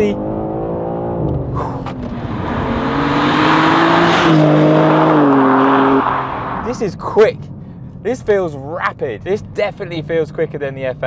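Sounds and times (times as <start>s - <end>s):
car engine accelerating hard: 0.0s - 6.7s.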